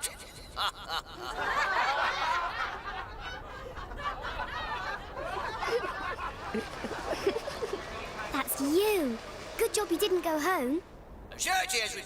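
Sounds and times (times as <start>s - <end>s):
crowd laughing: 0.0s - 9.6s.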